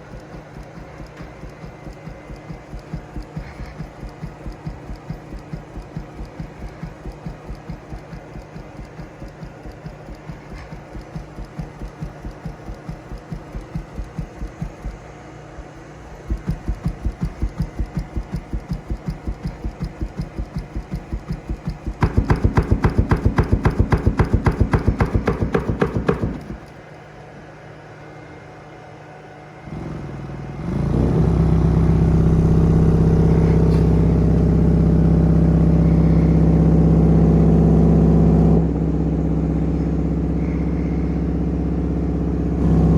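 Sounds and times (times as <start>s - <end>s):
subwoofer cone pumping: 0.0s - 26.8s
loud low hum: 29.7s - 42.9s.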